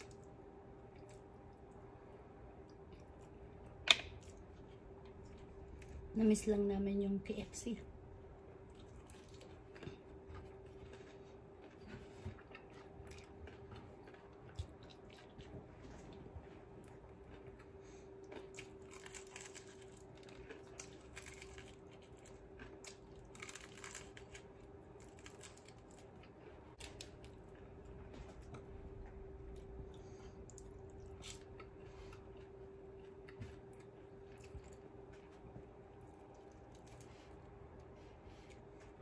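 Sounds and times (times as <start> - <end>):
faint steady hum: 0.0 - 39.0
chewing crispy fried chicken: 8.6 - 39.0.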